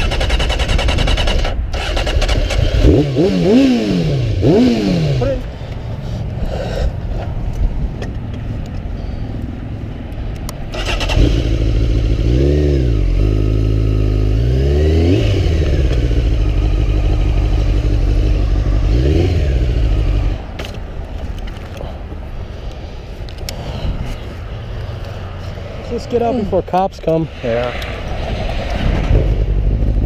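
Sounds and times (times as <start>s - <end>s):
motorcycle engine revving: 0.0s - 5.5s, 10.7s - 20.6s, 28.7s - 30.0s.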